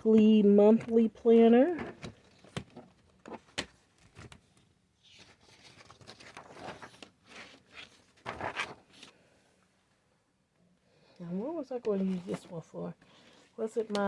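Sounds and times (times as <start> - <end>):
paper rustling and scraping: 1.8 - 9.3, 12.0 - 12.6.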